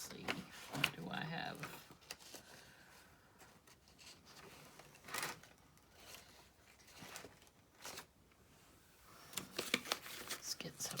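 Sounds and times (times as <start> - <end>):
paper rustling: 3.4 - 8.1, 9.2 - 11.0.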